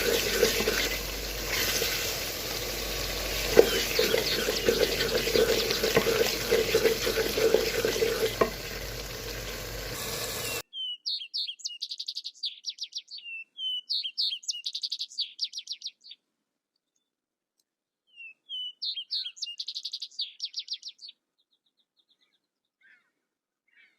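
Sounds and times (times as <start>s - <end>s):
stirring clicks: 0.0s - 10.0s
food sizzling in a frying pan: 0.0s - 10.6s
bird singing: 3.3s - 6.7s, 10.3s - 16.2s, 18.1s - 23.9s.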